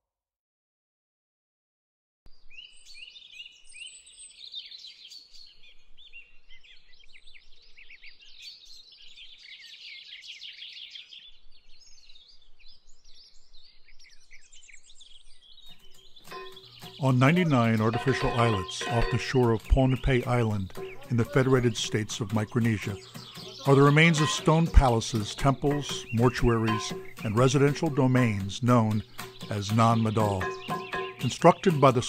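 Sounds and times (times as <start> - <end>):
many birds chirping: 2.4 - 32.0.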